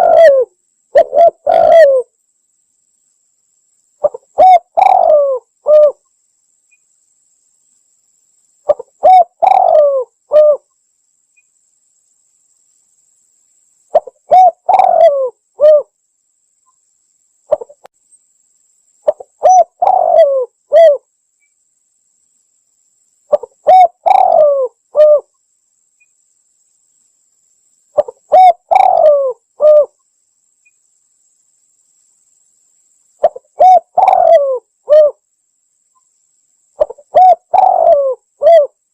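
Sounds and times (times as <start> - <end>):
dove cooing: 0.0 - 2.1, 4.0 - 6.0, 8.7 - 10.6, 13.9 - 15.9, 17.5 - 17.8, 19.0 - 21.0, 23.3 - 25.3, 28.0 - 30.0, 33.2 - 35.2, 36.8 - 38.8.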